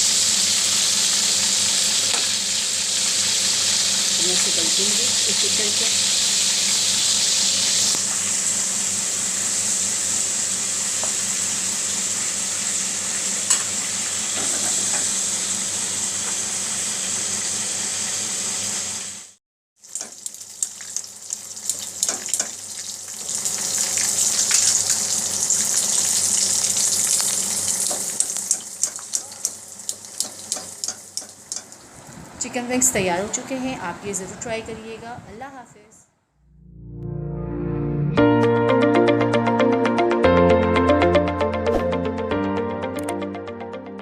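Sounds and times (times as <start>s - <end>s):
chicken wings sizzling in oil: 0.0s - 32.9s.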